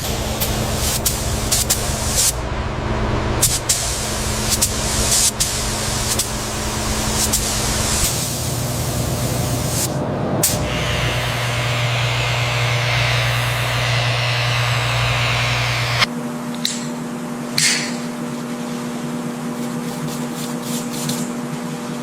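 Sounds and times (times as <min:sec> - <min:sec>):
spray gun hissing: 0:00.0 - 0:02.4, 0:03.4 - 0:16.1
motor hum: 0:08.5 - 0:16.1.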